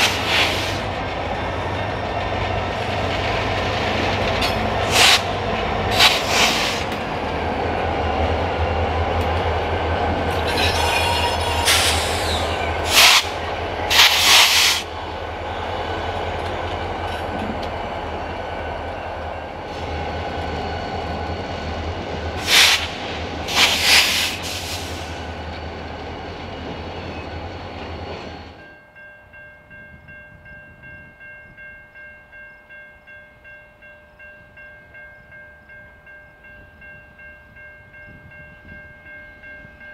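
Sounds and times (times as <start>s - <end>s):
diesel locomotive engines rumbling: 0.0s - 32.4s
crossing bell ringing: 1.1s - 3.6s, 25.4s - 39.9s.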